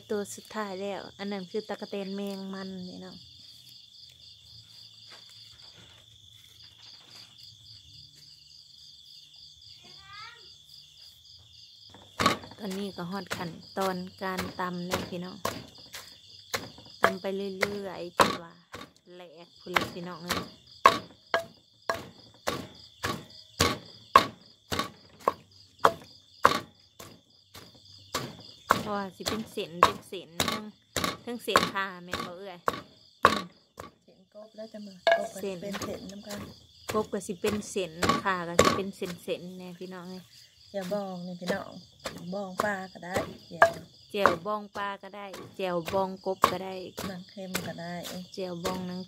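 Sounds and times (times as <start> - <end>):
insects chirring: 0.0 - 49.0
pestle pounding in a mortar: 11.9 - 19.0, 19.6 - 34.0, 35.0 - 39.3, 41.4 - 49.0.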